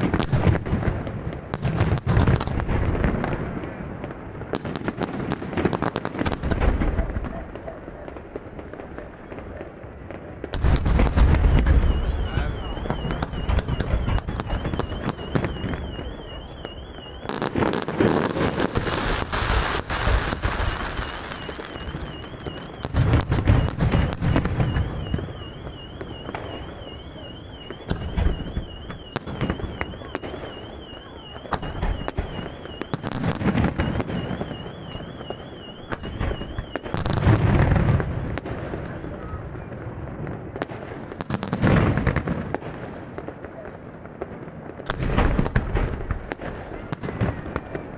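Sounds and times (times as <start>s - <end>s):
fireworks booming: 0.0s - 47.9s
fireworks crackling: 0.0s - 47.9s
warbling high tone: 11.7s - 17.5s, 20.2s - 37.0s.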